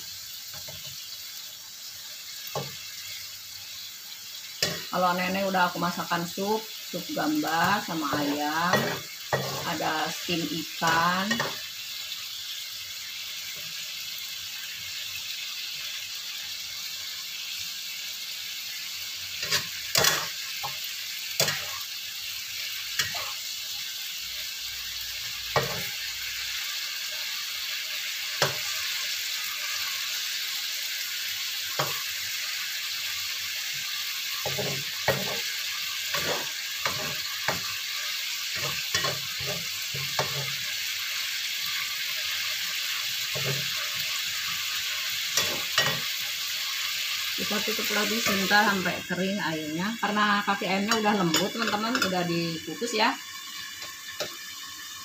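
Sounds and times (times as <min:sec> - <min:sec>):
food sizzling in a wok: 0:00.0 - 0:55.0
spatula scraping and knocking pan: 0:07.5 - 0:11.6, 0:19.4 - 0:20.8, 0:21.4 - 0:21.8, 0:23.0 - 0:23.4, 0:25.5 - 0:25.9, 0:34.4 - 0:35.5, 0:36.1 - 0:37.8, 0:38.5 - 0:40.6, 0:43.3 - 0:44.0, 0:45.3 - 0:46.2.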